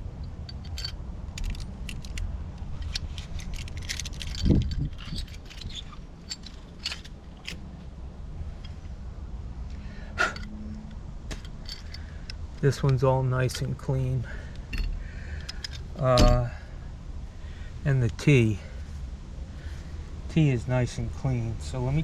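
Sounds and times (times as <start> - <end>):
metal fittings clicking and rattling: 0.2 - 7.6, 11.3 - 13.8, 14.6 - 16.4.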